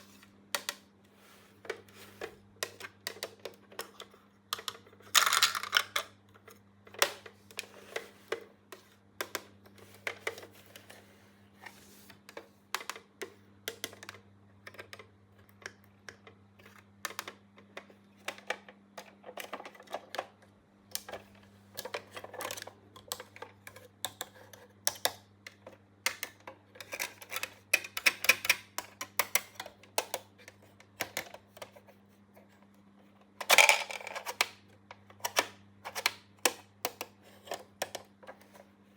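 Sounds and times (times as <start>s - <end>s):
plastic toy pieces clicking: 4.6s - 6.1s.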